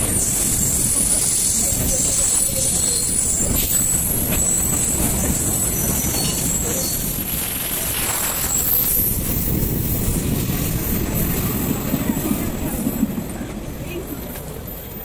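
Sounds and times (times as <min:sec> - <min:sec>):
high-pitched wheel squeal: 0:00.0 - 0:11.5
train wheels rumbling on rail: 0:00.0 - 0:15.0.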